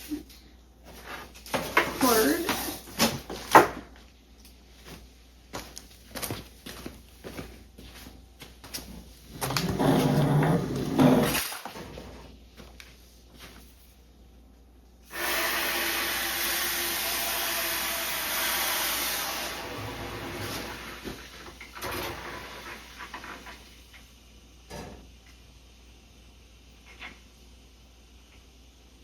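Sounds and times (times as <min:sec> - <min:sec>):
water rushing from garden hose: 0:15.1 - 0:21.5.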